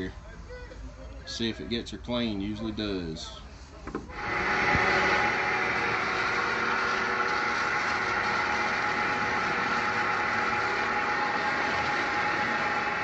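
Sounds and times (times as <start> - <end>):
engine idling: 4.1 - 13.0.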